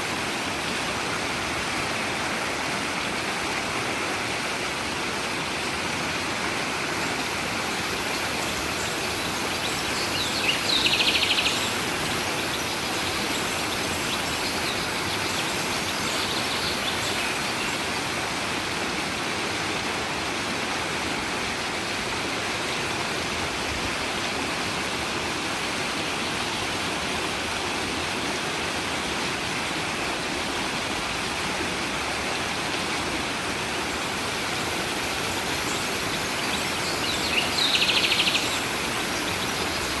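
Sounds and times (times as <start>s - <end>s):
stream running: 0.0s - 40.0s.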